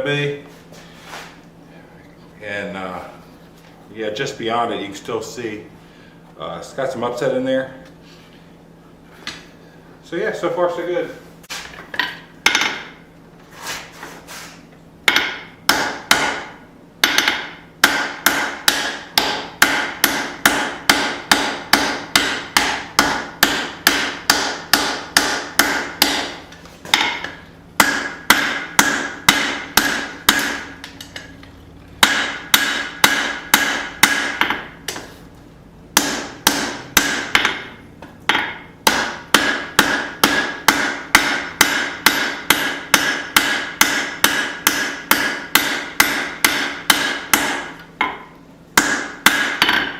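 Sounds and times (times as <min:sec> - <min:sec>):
hammer ringing on anvil: 0:38.3 - 0:48.2.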